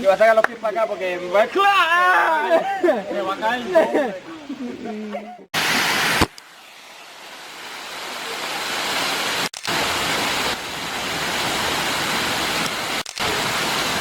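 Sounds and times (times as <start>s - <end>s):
waterfall rushing water: 5.6s - 14.0s.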